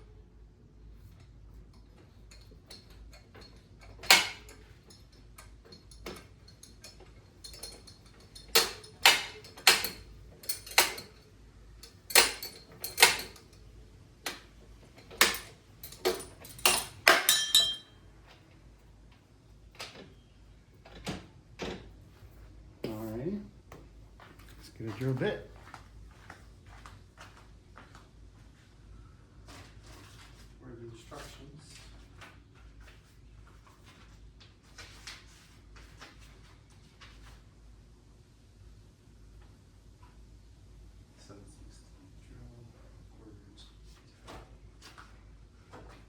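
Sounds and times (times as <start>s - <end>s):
metal tools clinking: 1.8s - 13.6s, 14.3s - 18.0s.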